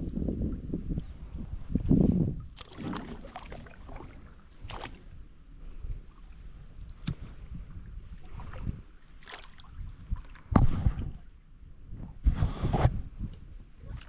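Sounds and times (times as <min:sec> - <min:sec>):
paddle strokes splashing in water: 0:02.4 - 0:05.2, 0:08.1 - 0:11.1.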